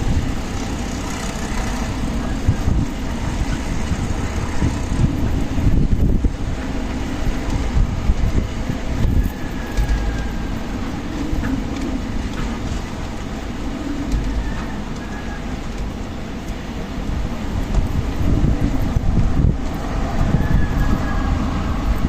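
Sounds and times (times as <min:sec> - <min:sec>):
faint high wind whistle: 0:00.0 - 0:15.9, 0:17.1 - 0:22.0
strong gusty wind rumble: 0:00.0 - 0:22.0.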